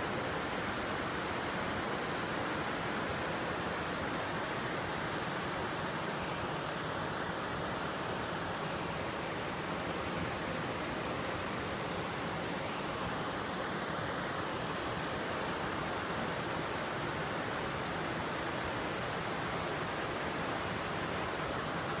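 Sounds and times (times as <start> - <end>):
river rushing in full flow: 0.0 - 22.0.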